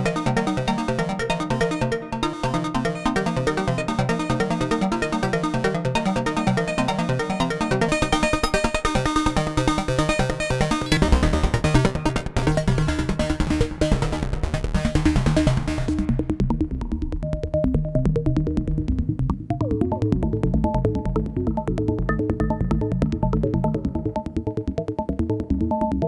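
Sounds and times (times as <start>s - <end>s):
synthesizer notes through delay: 10.8s - 13.8s.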